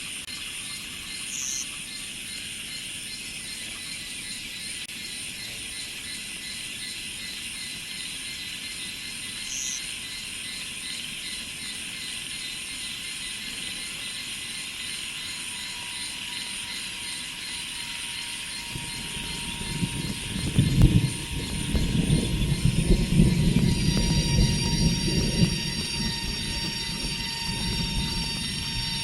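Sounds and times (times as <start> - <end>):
insect chorus: 0.0 - 29.0
bird chirp: 0.3 - 29.0
train rumble: 12.4 - 29.0.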